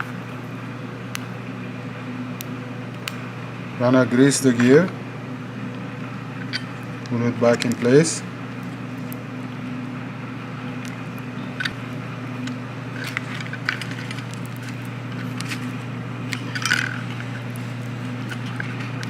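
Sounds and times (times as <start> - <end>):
steady low hum: 0.0 - 19.0
small parts clicking and tapping: 12.4 - 15.7, 16.3 - 17.4.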